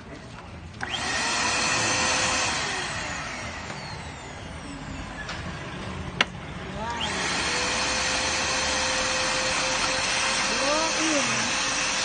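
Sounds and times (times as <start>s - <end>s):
vacuum cleaner motor running: 0.8s - 5.0s, 6.8s - 12.0s.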